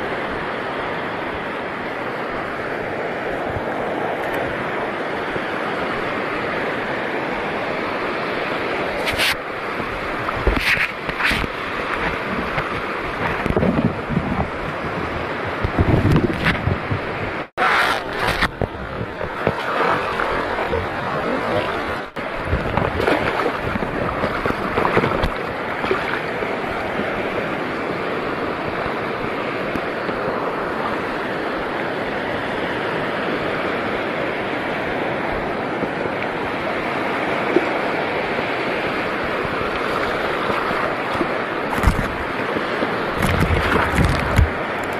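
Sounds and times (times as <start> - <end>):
shallow sea water and surf: 0.0 - 44.9
wind on microphone: 0.0 - 44.9
short splashes: 19.4 - 26.3.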